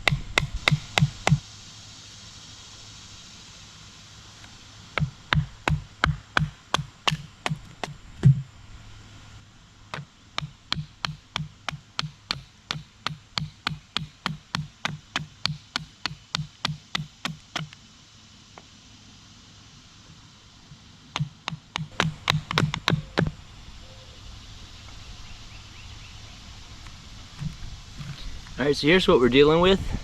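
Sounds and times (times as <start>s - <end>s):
wooden baton striking blade: 0.0s - 1.4s, 10.4s - 17.7s.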